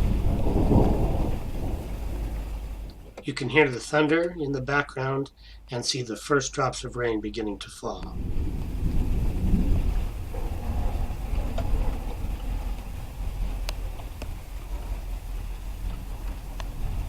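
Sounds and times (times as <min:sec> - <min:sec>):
distant thunder rumbling: 0:00.0 - 0:03.9, 0:08.0 - 0:17.0
raindrops ticking: 0:00.0 - 0:05.6, 0:06.4 - 0:17.0.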